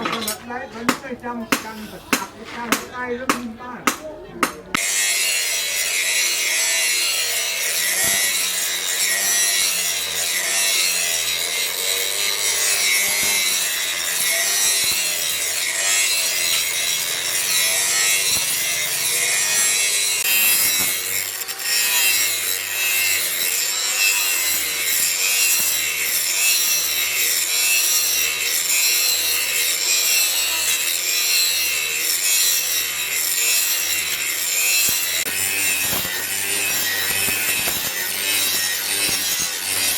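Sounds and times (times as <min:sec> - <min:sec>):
hand tool rasping on steel: 0:00.0 - 0:39.9.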